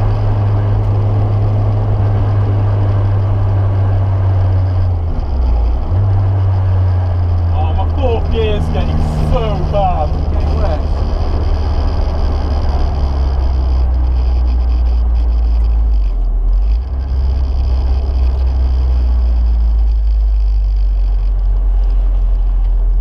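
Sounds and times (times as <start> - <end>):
car engine droning: 0.0 - 23.0
tyre noise: 0.0 - 23.0.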